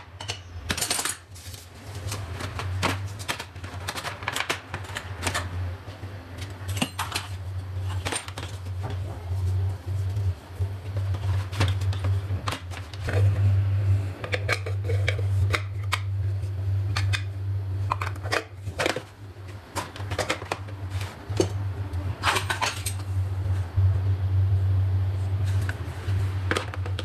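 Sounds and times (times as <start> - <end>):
steady low hum: 0.0 - 27.0
utensils clattering: 0.1 - 5.6, 6.4 - 8.7, 19.8 - 21.6, 22.2 - 23.1.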